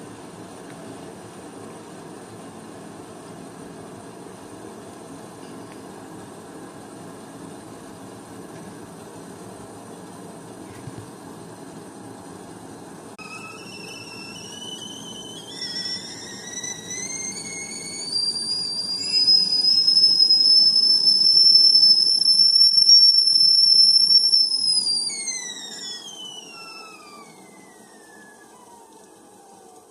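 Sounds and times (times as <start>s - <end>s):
kettle whistling: 13.2s - 29.9s.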